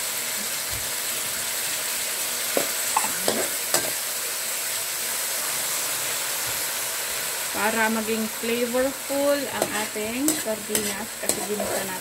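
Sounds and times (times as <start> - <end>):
fish sizzling in a wok: 0.0 - 12.0
metal spatula scraping a wok: 9.4 - 12.0.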